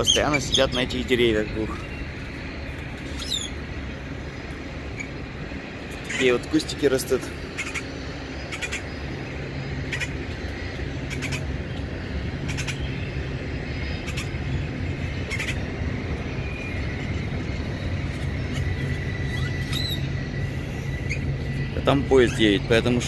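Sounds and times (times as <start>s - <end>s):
bird chirps: 0.0s - 3.7s, 13.8s - 22.7s
train rumbling past: 0.0s - 23.0s
trucks humming: 0.0s - 23.0s.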